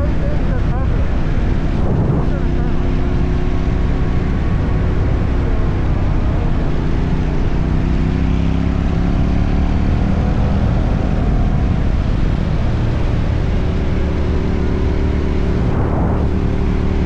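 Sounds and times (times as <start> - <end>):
motorcycle engine running: 0.0 - 17.0
road and wind noise: 0.0 - 17.0.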